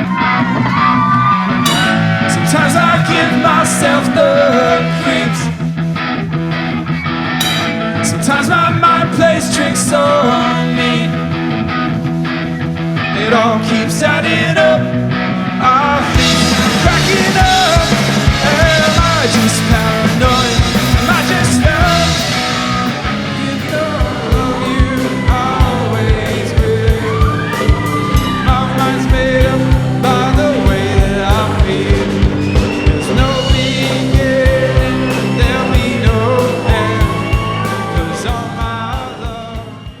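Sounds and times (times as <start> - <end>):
rock band playing live: 0.0 - 40.0
steady drum beat: 1.6 - 4.6, 16.0 - 40.0
person singing: 1.6 - 5.7, 7.8 - 11.4, 13.0 - 40.0.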